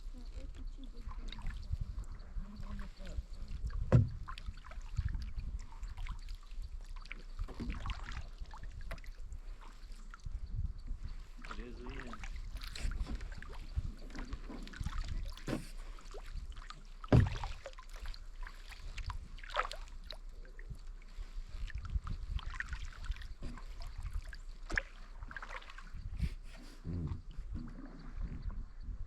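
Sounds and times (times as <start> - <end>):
paddle strokes splashing: 0.0 - 26.8
knocks against kayak: 3.8 - 4.2, 15.4 - 15.8, 17.1 - 17.5.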